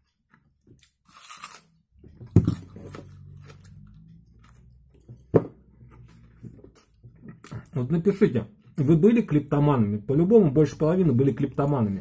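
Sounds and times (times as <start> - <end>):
chewing food: 0.0 - 5.3.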